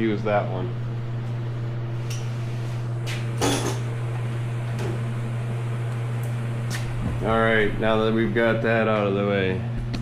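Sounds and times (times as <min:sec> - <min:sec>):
steady low hum: 0:00.0 - 0:10.0
metal tools clattering: 0:03.4 - 0:03.8.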